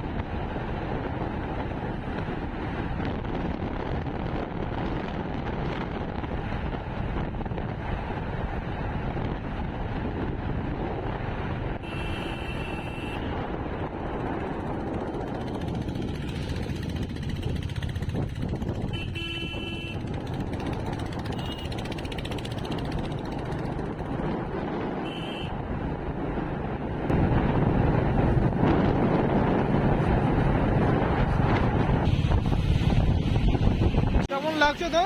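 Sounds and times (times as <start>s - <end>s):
wind on microphone: 0.0s - 34.3s
short horn beeps: 11.8s - 13.3s, 25.1s - 25.5s
motorcycle engine: 11.8s - 34.3s.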